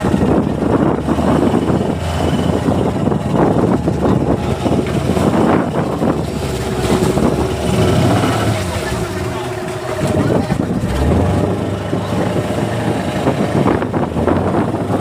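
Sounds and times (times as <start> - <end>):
boat engine running: 0.0 - 15.0
rough sea rushing: 0.0 - 15.0
wind buffeting microphone: 0.0 - 15.0.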